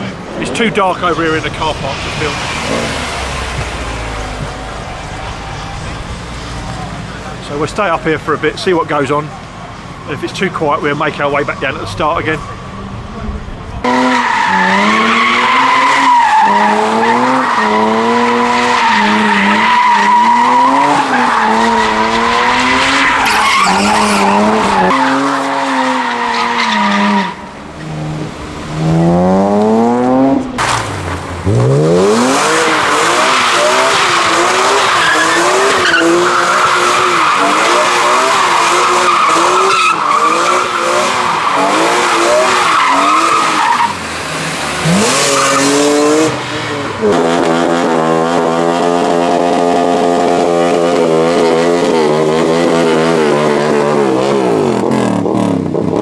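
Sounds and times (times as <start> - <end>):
car engine revving: 0.0 - 56.0
tyre squeal: 13.9 - 27.9, 32.4 - 47.2.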